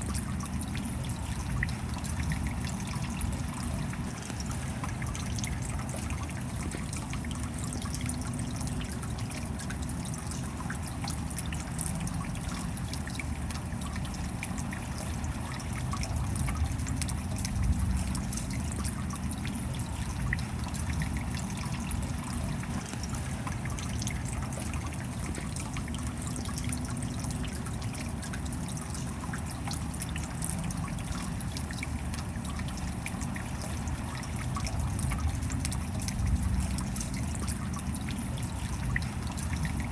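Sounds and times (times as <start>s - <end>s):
rain drops pattering: 0.0s - 39.9s
water trickling and dripping: 0.0s - 39.9s.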